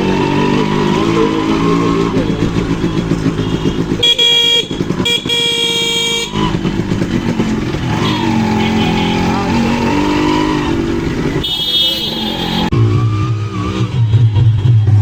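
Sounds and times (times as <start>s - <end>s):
two-stroke motorcycle engine: 0.0s - 15.0s
vehicle horn: 2.6s - 6.5s, 7.9s - 10.0s, 11.4s - 12.7s.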